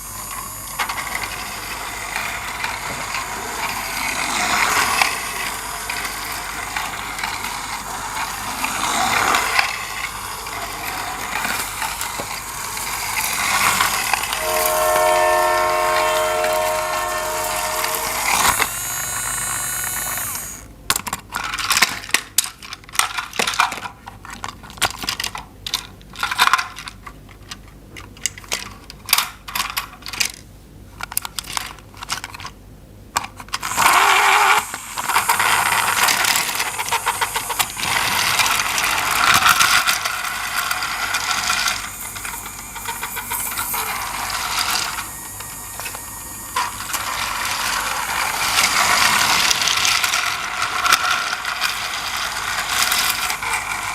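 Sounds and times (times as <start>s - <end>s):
toy train mechanism whirring: 0.0s - 32.6s, 33.2s - 53.9s
plastic toy parts clattering: 20.2s - 32.6s, 33.2s - 45.1s, 46.6s - 53.9s.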